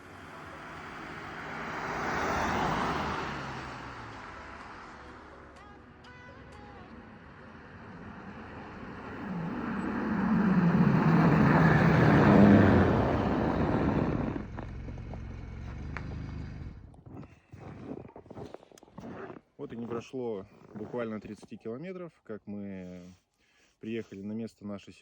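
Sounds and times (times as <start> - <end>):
car engine revving: 0.0 - 5.4, 6.4 - 17.8
road noise: 0.0 - 21.4.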